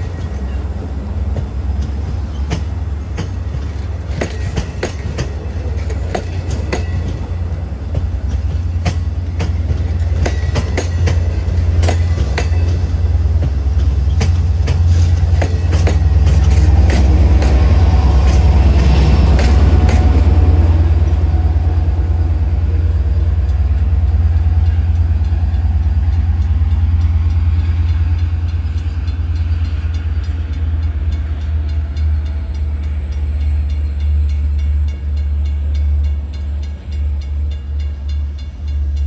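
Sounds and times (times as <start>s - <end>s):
wheels clicking over rail joints: 0.0s - 20.7s
train rumble: 0.0s - 39.0s
crossing bell ringing: 8.6s - 39.0s.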